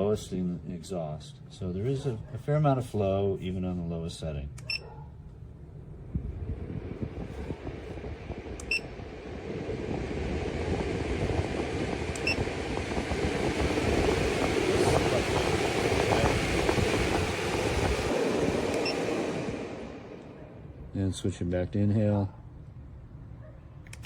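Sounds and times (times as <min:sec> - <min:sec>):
vent fan rushing air: 0:00.0 - 0:24.0
short beeps: 0:08.6 - 0:08.9.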